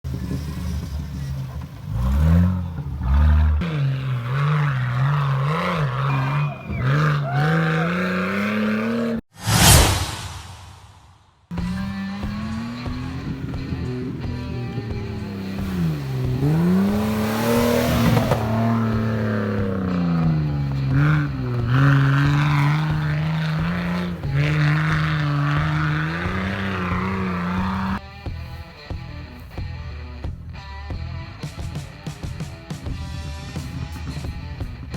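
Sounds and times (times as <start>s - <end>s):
engine revving under load: 0.1s - 10.8s, 11.5s - 28.0s.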